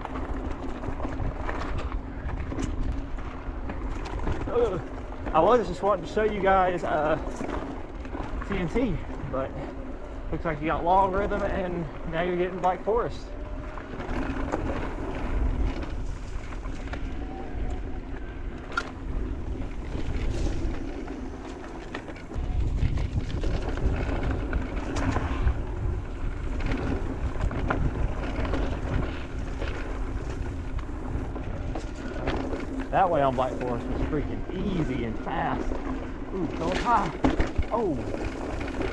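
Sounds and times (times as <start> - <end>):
wind buffeting microphone: 0.0 - 38.9
tyre noise on dirt: 36.6 - 38.9.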